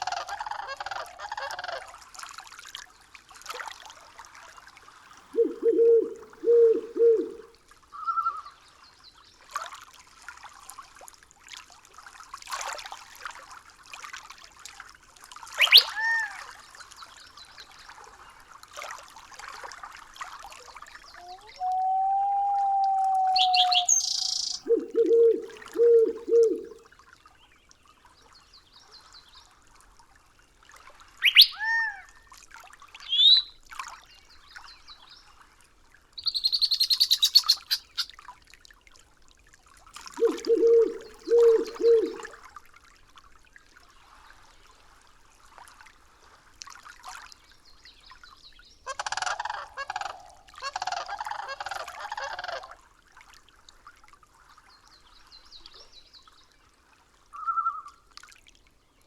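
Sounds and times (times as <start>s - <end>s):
low three-note bird call: 5.4s - 7.5s, 21.3s - 26.8s
fast bird trill: 15.6s - 15.9s, 23.4s - 24.7s, 31.2s - 31.6s, 36.2s - 38.1s
high bird chirps and whistles: 15.6s - 16.0s, 21.6s - 25.3s, 31.2s - 31.6s, 33.1s - 33.5s, 36.2s - 38.1s.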